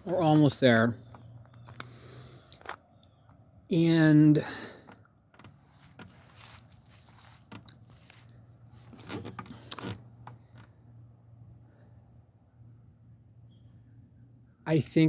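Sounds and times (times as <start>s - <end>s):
faint footsteps: 5.3s - 10.7s
clothing rustle: 5.4s - 10.7s.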